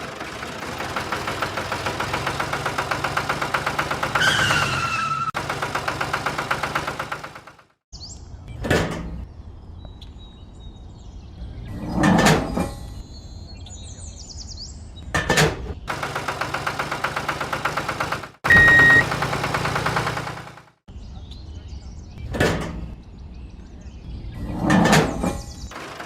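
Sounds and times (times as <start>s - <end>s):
small engine running: 0.0s - 7.8s, 15.9s - 20.8s, 25.7s - 26.0s.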